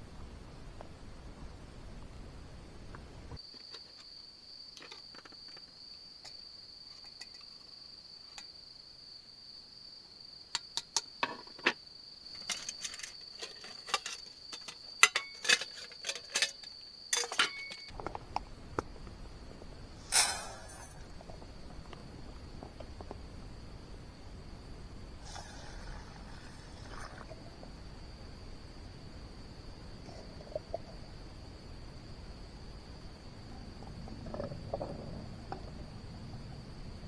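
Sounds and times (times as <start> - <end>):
crickets trilling: 3.4 - 37.0
rustle: 11.2 - 28.2.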